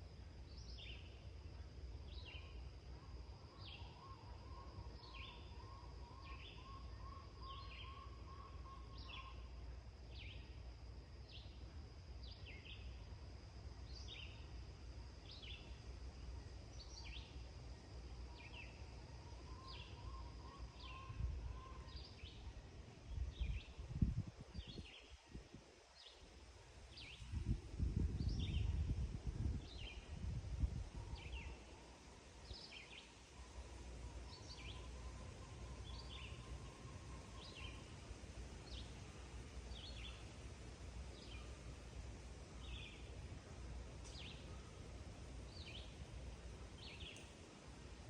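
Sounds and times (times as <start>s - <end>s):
bird chirping: 34.0s - 38.0s, 46.8s - 47.4s.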